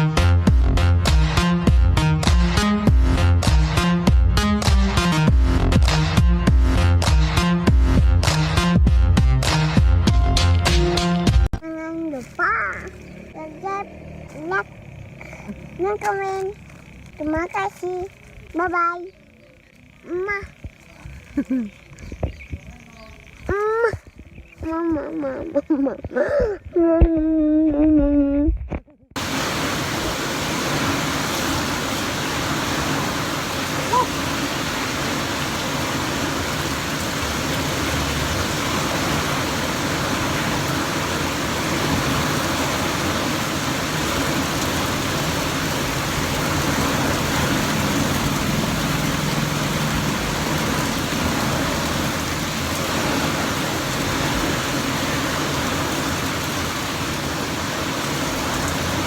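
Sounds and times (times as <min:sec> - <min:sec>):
heavy rain falling: 0:29.2 - 0:59.0.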